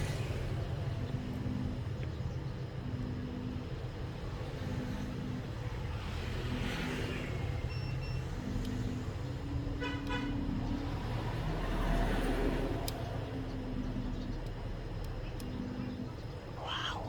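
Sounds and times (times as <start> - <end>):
steady low hum: 0.0 - 6.5, 8.3 - 17.0
road traffic engines: 0.0 - 17.0.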